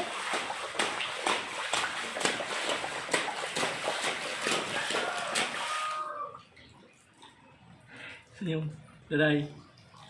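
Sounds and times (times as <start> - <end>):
child splashing in puddles: 0.0 - 6.4.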